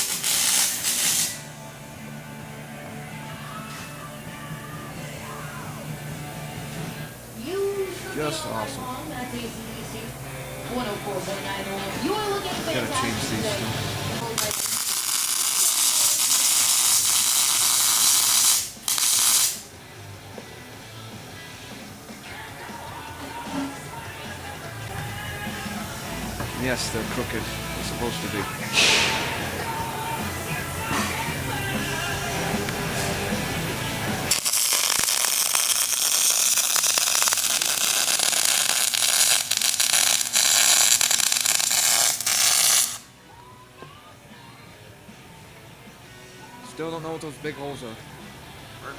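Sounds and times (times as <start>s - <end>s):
welding arc crackling and hissing: 0.0s - 1.7s, 12.8s - 19.7s, 34.2s - 43.1s.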